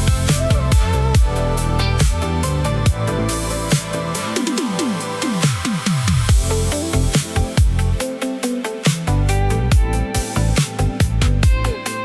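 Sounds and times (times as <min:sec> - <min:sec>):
kick-drum beat: 0:00.0 - 0:01.4, 0:02.0 - 0:03.1, 0:05.5 - 0:08.1, 0:09.7 - 0:10.1, 0:10.8 - 0:11.8.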